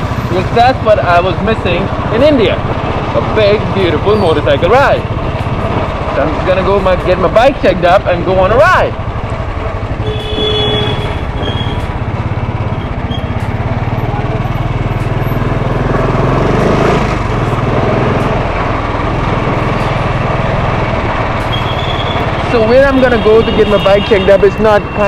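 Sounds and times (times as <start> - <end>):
motorcycle engine running: 0.0 - 25.0
short horn beeps: 10.0 - 11.8.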